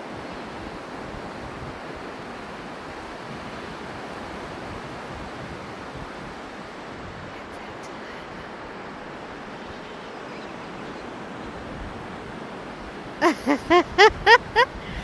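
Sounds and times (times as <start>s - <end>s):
person's short rhythmic cries: 13.2s - 15.0s.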